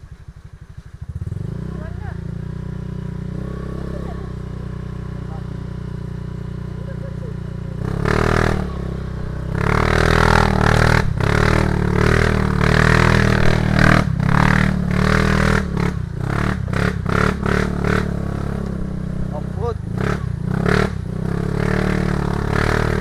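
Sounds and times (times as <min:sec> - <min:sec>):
motorcycle engine under load: 0:00.0 - 0:23.0.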